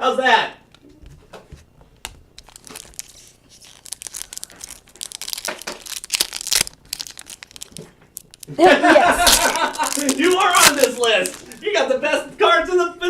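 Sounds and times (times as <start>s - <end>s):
foil wrappers crinkling and tearing: 2.4s - 11.8s.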